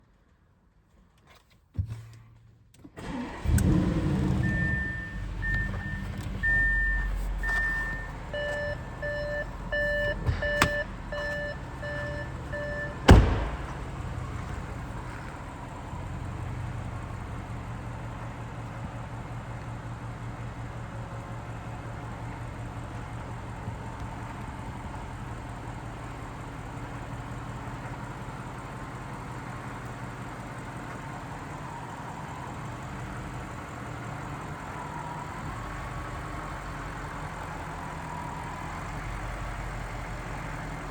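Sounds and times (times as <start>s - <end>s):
car engine starting and idling: 2.8s - 40.9s
car warning chime beeping: 4.2s - 15.0s
sharp thump: 12.9s - 14.7s.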